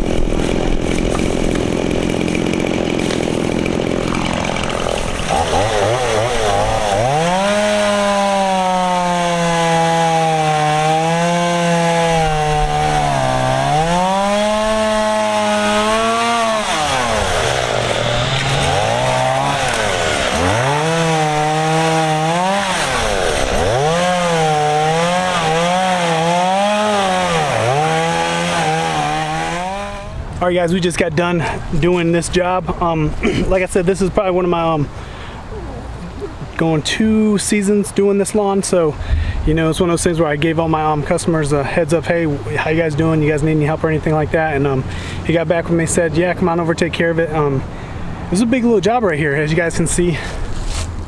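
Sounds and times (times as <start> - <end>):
chainsaw revving: 0.0 - 34.8.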